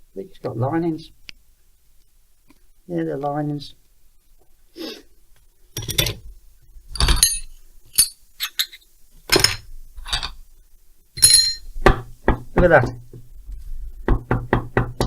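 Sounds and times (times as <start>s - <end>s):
metal tools clinking: 6.9s - 8.8s, 11.2s - 11.7s.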